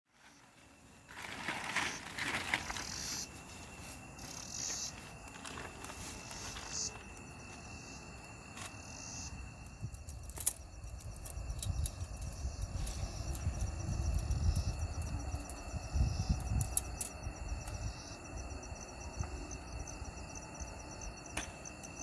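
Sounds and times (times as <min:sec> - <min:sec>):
insects buzzing and chirping: 0:00.1 - 0:22.0
wind rumble on microphone: 0:09.3 - 0:22.0.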